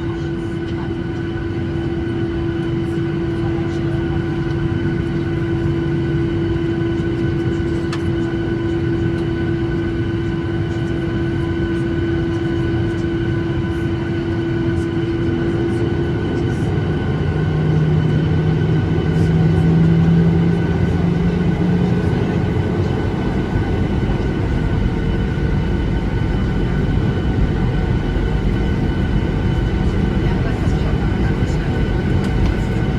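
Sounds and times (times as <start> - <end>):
jet engines roaring in cabin: 0.0 - 32.9.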